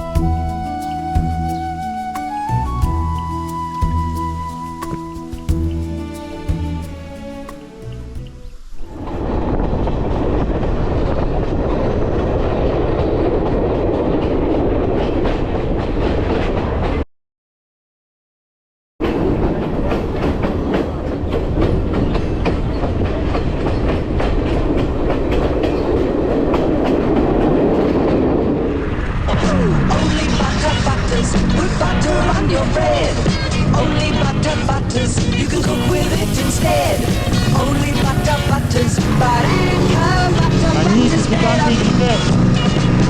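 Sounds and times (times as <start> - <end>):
train rumbling on rails: 0.0 - 17.0, 19.0 - 43.0
wheels clacking over rail joints: 19.0 - 28.8, 34.4 - 42.3.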